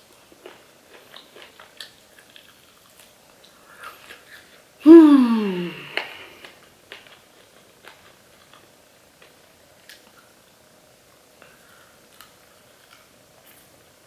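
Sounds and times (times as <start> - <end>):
faint chewing: 0.0 - 4.7, 5.6 - 14.0.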